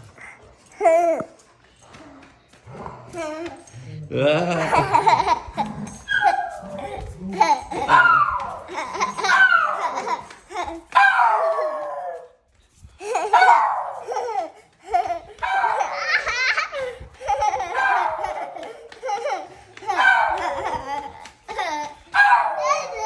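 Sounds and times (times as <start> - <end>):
toddler laughing: 4.2 - 11.6, 13.0 - 23.0.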